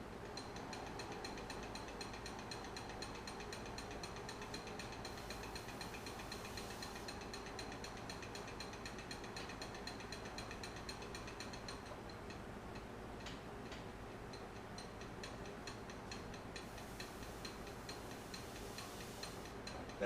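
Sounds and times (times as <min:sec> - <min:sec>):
rapid even ticking: 0:00.2 - 0:20.0
wood lathe spinning: 0:04.4 - 0:08.1.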